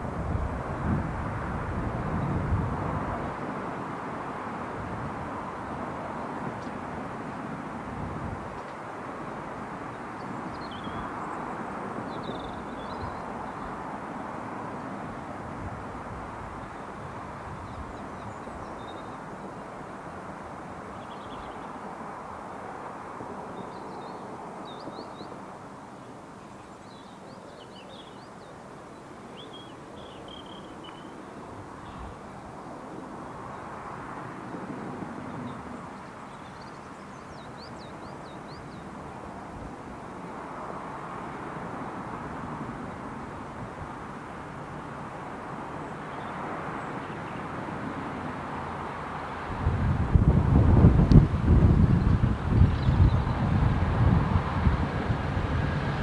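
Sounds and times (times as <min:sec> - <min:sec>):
small birds chirping: 0:09.8 - 0:13.8, 0:16.6 - 0:19.7, 0:20.9 - 0:21.8, 0:26.0 - 0:32.4, 0:35.3 - 0:39.2, 0:45.7 - 0:47.5, 0:51.7 - 0:53.5.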